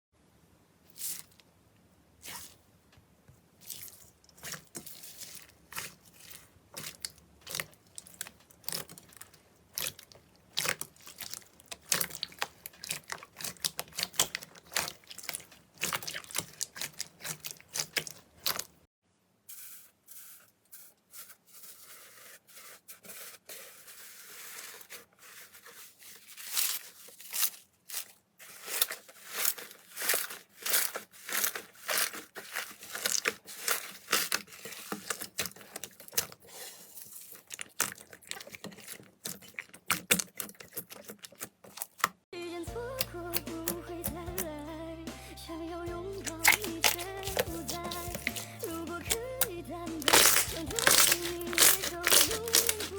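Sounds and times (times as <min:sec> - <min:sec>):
slime crackling and popping: 0:04.4 - 0:18.8, 0:46.2 - 0:52.9.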